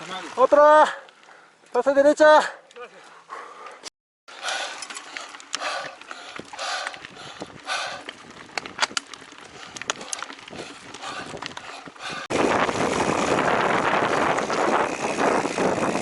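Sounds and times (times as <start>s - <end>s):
bike chain and frame rattling: 4.3s - 16.0s.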